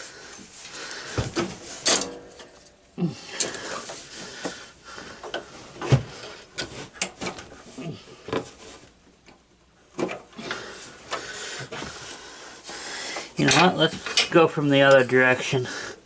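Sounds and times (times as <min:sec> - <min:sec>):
hand tools and metal parts clinking: 0:01.4 - 0:04.1, 0:13.2 - 0:15.0.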